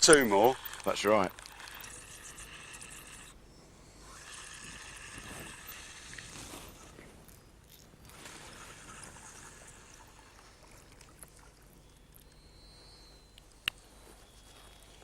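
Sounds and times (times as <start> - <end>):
running river water: 0.0 - 3.4, 8.1 - 12.4.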